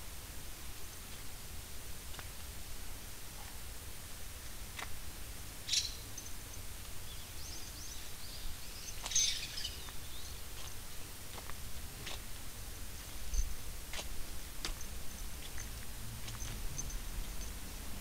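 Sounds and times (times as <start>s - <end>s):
low outdoor rumble: 0.0s - 18.0s
small birds chirping: 5.6s - 12.3s, 12.9s - 17.9s.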